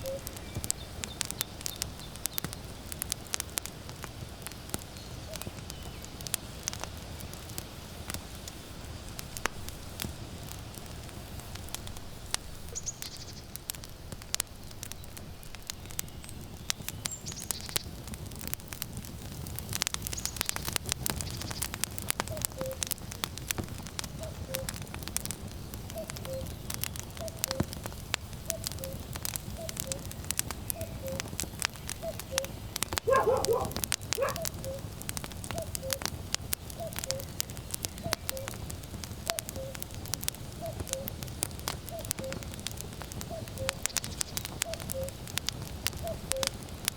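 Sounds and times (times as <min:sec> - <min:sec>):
cuckoo calling: 0:00.0 - 0:00.4, 0:22.3 - 0:22.9, 0:24.2 - 0:24.8, 0:26.0 - 0:26.6, 0:27.2 - 0:27.7, 0:28.5 - 0:31.3, 0:32.0 - 0:34.9, 0:35.5 - 0:36.1, 0:36.8 - 0:37.4, 0:38.0 - 0:38.6, 0:39.3 - 0:39.8, 0:41.9 - 0:42.5, 0:43.3 - 0:44.0, 0:44.6 - 0:45.2, 0:46.0 - 0:46.6
firewood crackling and popping: 0:00.0 - 0:46.9
low rushing of flame and wind: 0:00.0 - 0:46.9
dog barking: 0:33.1 - 0:34.8.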